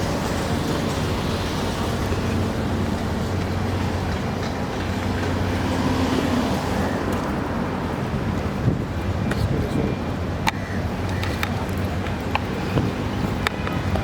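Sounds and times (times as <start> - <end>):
low engine hum: 0.0 - 10.4
traffic noise: 0.0 - 14.0.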